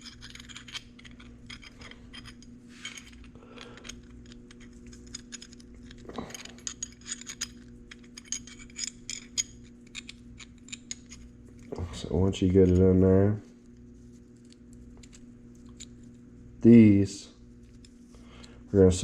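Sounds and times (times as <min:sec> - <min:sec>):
metal parts clinking: 0:00.0 - 0:12.9
steady low hum: 0:00.0 - 0:19.0.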